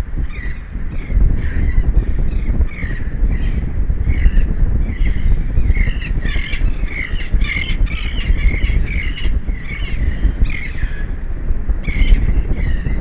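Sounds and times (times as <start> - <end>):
wind rumble on microphone: 0.0 - 13.0
birds squawking: 4.1 - 11.0.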